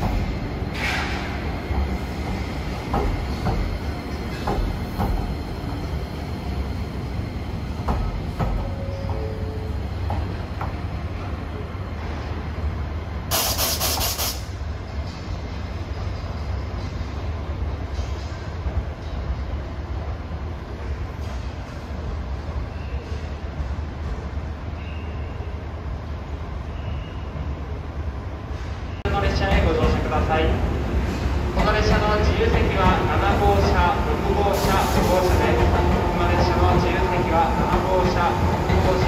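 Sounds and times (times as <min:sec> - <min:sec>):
train rumble: 0:00.0 - 0:24.6, 0:28.5 - 0:39.0
compressed air hissing: 0:13.3 - 0:14.6.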